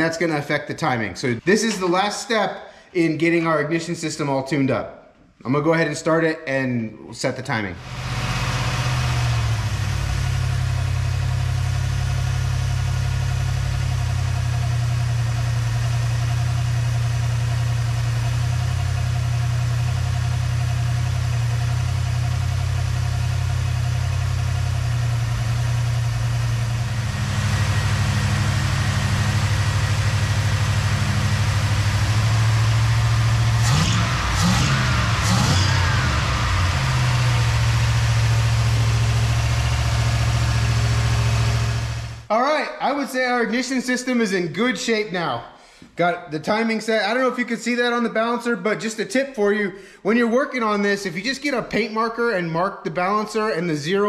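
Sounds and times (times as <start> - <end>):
car engine fast idle: 7.8 - 42.3.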